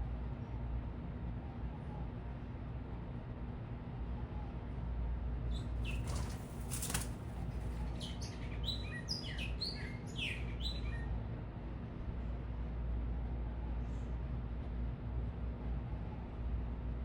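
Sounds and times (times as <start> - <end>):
low rumble of city traffic: 0.0 - 17.0
small birds chirping: 5.5 - 11.0
wings fluttering: 5.8 - 8.1.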